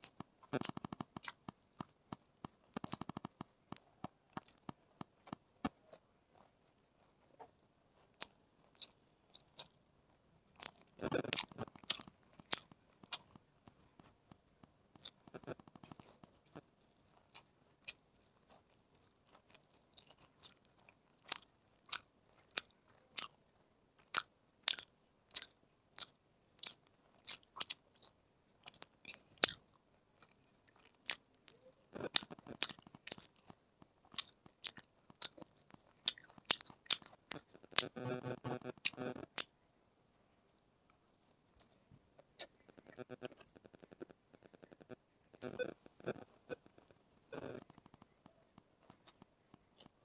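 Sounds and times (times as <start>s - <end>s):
chewing with wet mouth clicks: 0.0s - 7.1s, 15.0s - 23.4s, 24.0s - 39.5s
crunching bite of fried food: 24.1s - 29.7s, 32.0s - 39.5s.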